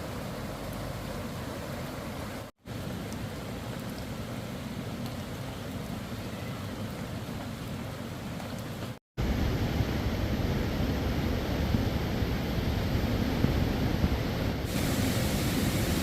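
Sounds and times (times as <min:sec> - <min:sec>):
heavy rain rushing: 0:12.7 - 0:16.0.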